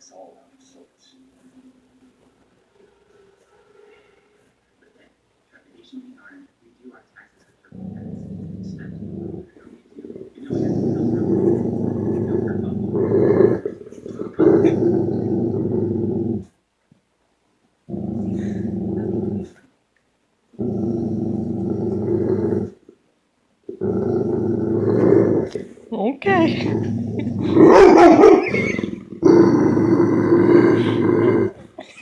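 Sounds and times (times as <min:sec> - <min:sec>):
dog growling: 0:07.7 - 0:16.6, 0:17.9 - 0:19.7, 0:20.5 - 0:23.0, 0:23.7 - 0:32.0.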